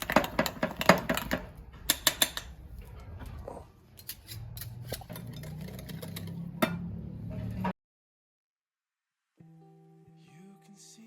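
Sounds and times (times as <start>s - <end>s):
utensil scraping in mixing bowl: 4.0s - 6.6s.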